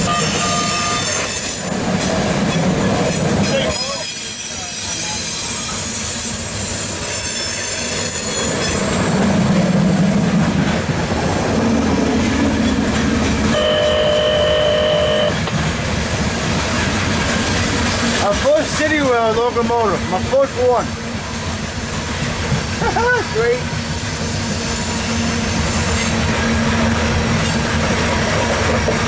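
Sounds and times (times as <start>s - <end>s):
locomotive horn: 0.0s - 1.3s, 13.5s - 15.5s
freight cars rumbling on rails: 0.0s - 29.0s
high wheel squeal: 3.4s - 9.2s, 22.5s - 26.8s.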